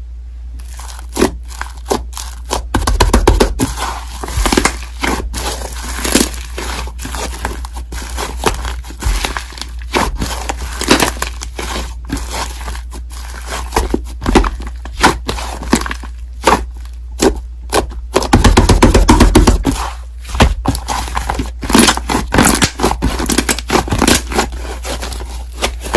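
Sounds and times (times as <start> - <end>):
slime squished by hand: 0.6 - 25.9.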